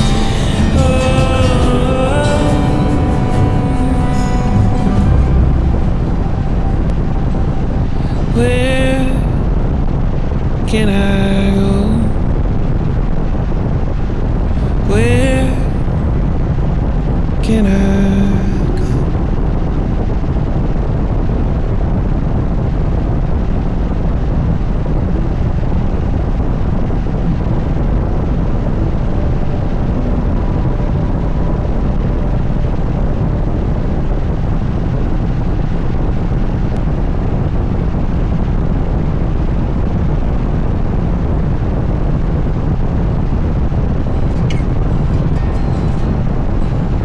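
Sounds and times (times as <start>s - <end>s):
motorcycle engine rumbling: 0.0s - 18.1s, 44.0s - 47.0s.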